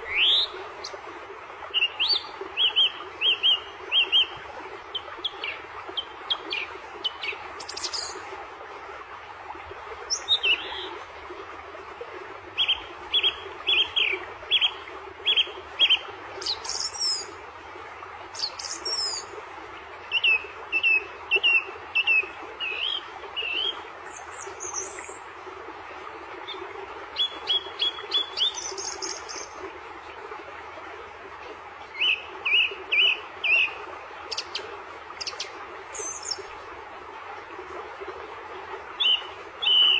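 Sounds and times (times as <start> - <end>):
steady background hiss: 0.0 - 39.9
songbirds chirping: 26.0 - 36.8, 38.6 - 39.9.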